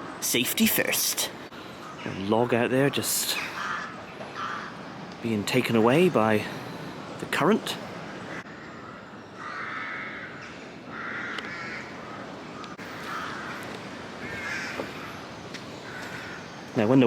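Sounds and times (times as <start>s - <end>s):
crow cawing: 1.7s - 2.4s, 3.3s - 5.0s, 7.8s - 16.8s.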